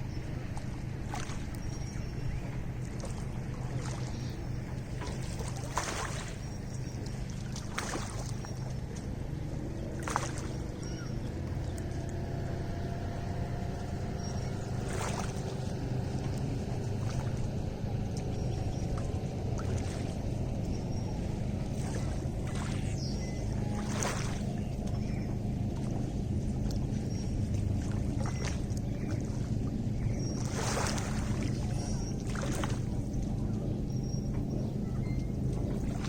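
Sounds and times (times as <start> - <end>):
low rumble: 0.0 - 36.0
water lapping: 0.0 - 36.0
sharp splashes: 5.0 - 6.5, 7.3 - 8.7, 10.0 - 10.6, 14.8 - 15.7, 19.0 - 20.3, 21.7 - 23.0, 23.7 - 24.6, 30.4 - 33.0.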